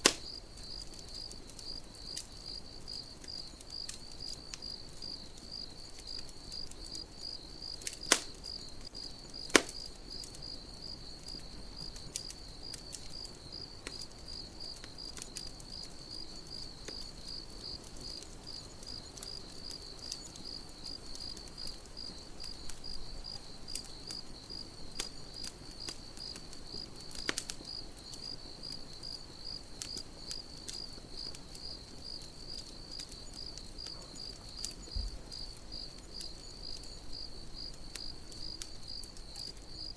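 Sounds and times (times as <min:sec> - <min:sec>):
sharp pops: 0:00.0 - 0:00.3, 0:08.1 - 0:08.4, 0:09.5 - 0:09.9
campfire crackling: 0:00.0 - 0:39.9
crickets chirping: 0:00.0 - 0:39.9
faint ticks: 0:00.0 - 0:39.9.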